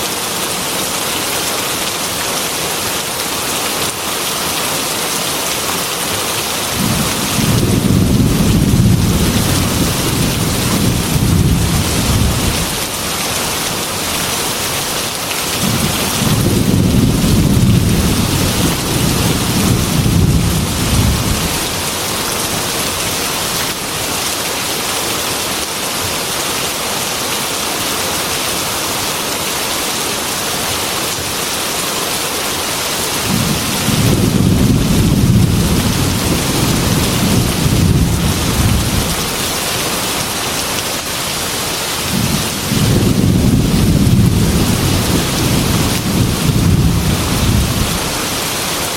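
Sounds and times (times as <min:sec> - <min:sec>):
heavy rain on window glass: 0:00.0 - 0:48.9
low thunder rumbles: 0:06.8 - 0:12.8, 0:15.6 - 0:21.8, 0:33.3 - 0:39.4, 0:42.1 - 0:48.1.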